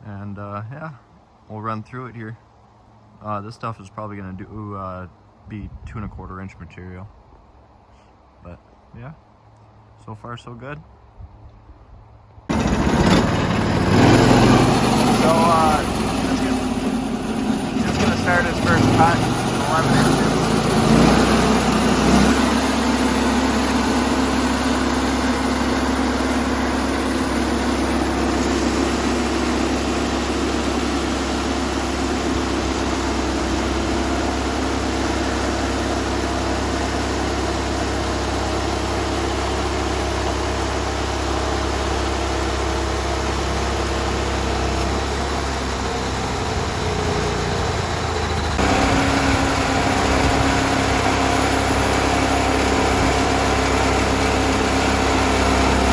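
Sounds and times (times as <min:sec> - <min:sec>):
saw blade cutting log: 0:12.5 - 0:39.0, 0:43.0 - 0:55.9
sawmill engine running: 0:12.5 - 0:55.9.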